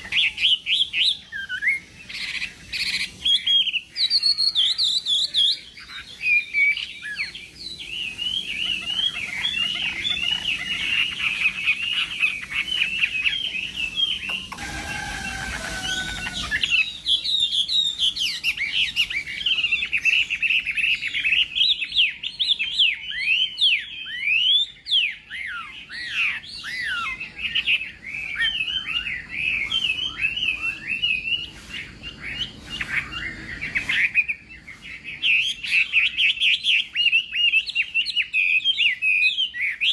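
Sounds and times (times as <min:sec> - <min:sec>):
bird singing whistled notes: 0:00.0 - 0:39.9.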